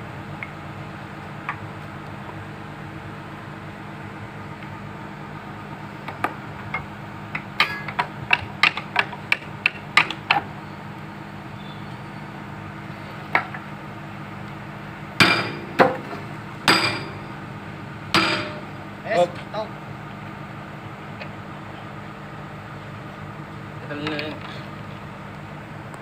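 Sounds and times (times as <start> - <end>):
excavator engine humming: 0.0 - 26.0
hammer striking steel: 15.2 - 16.1, 16.7 - 17.2, 18.1 - 18.8.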